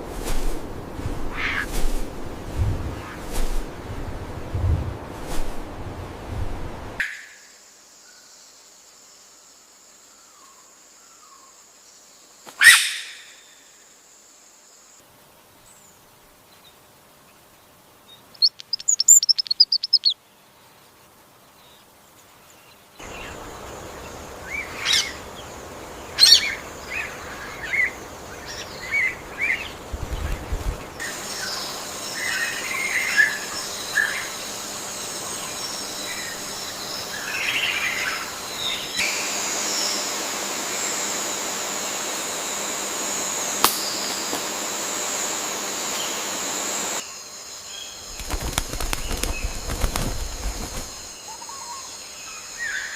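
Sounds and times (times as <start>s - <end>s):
steady forest hiss: 0.0s - 52.9s
birds chirping and calling: 18.4s - 20.2s, 26.1s - 39.0s.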